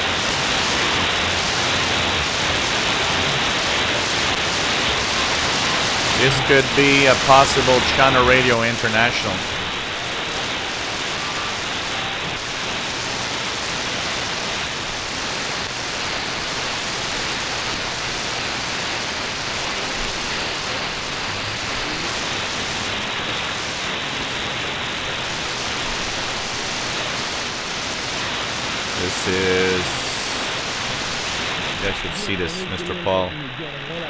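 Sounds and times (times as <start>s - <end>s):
shortwave radio static hiss: 5.5s - 10.0s, 28.9s - 33.9s.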